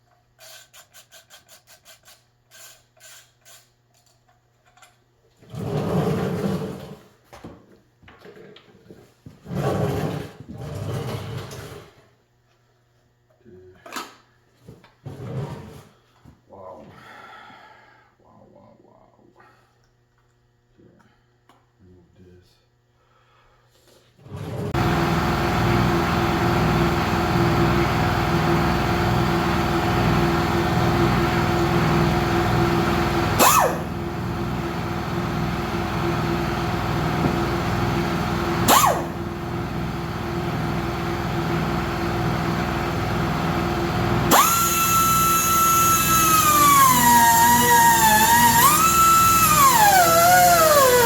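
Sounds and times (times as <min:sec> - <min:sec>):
power tool whining: 0:24.5 - 0:51.0.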